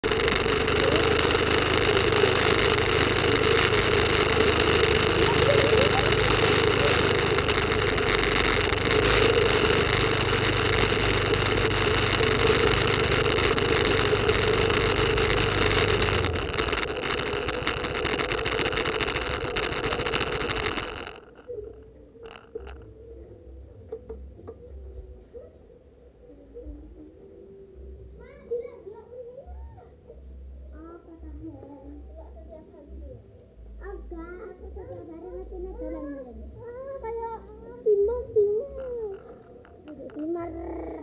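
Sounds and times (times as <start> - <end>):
steady hiss: 0.0 - 22.8
small motorcycle engine running: 0.0 - 23.0, 34.6 - 41.0.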